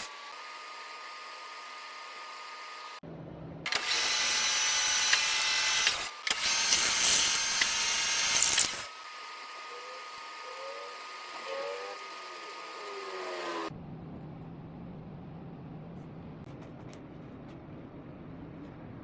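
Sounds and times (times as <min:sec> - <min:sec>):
lathe cutting with whine: 0:03.8 - 0:13.7.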